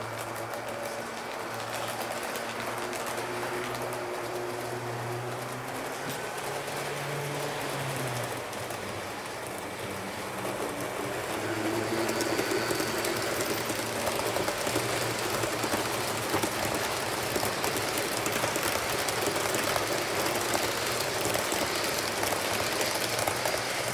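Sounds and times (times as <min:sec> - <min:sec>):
model locomotive motor humming: 0:00.0 - 0:23.9
wheels clicking over rails: 0:00.0 - 0:23.9.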